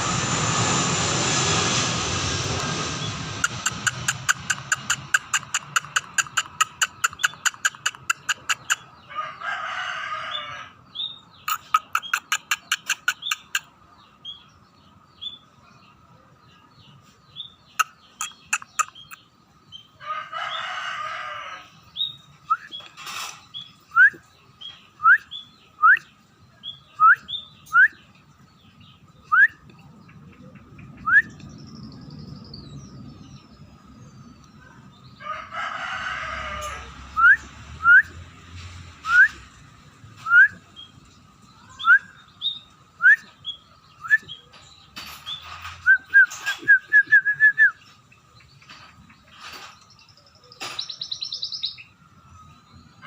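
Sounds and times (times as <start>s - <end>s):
bird sharp clicking calls: 3.4s - 8.9s, 11.4s - 13.7s, 17.7s - 19.3s, 48.5s - 51.8s
rooster crowing: 9.1s - 10.8s, 20.0s - 21.7s, 35.2s - 38.1s
bird short rising chirps: 50.8s - 51.9s.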